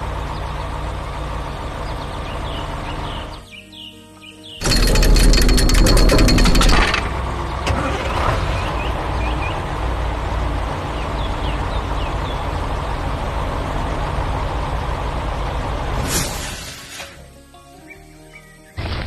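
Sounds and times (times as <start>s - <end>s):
heavy truck engine running: 0.0s - 3.6s, 4.6s - 16.9s
short hiss: 16.0s - 17.3s.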